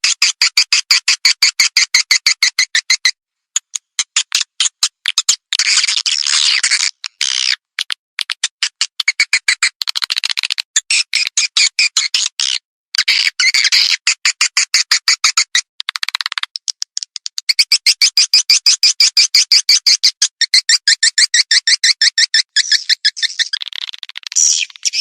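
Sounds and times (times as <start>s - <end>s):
swiftlet twittering and chirps: 21.6s - 25.0s.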